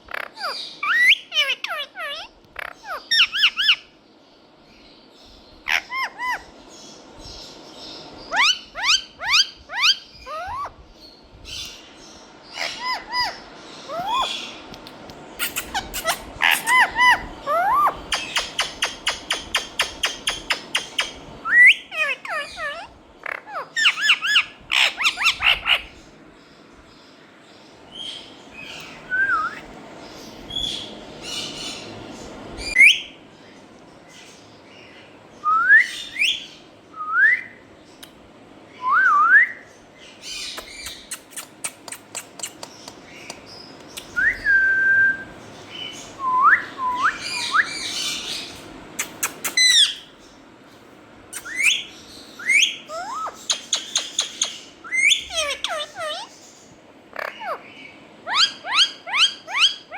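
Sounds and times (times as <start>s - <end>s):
parakeet squawking: 0.0s - 3.9s, 5.7s - 6.5s, 8.3s - 10.8s, 12.5s - 14.6s, 15.4s - 26.0s, 45.7s - 50.2s, 51.3s - 59.9s
parakeet whistling: 8.3s - 10.7s, 15.4s - 25.8s, 28.7s - 29.7s, 44.1s - 50.1s, 51.3s - 56.4s, 58.2s - 59.9s
parakeet clicking: 40.6s - 44.2s.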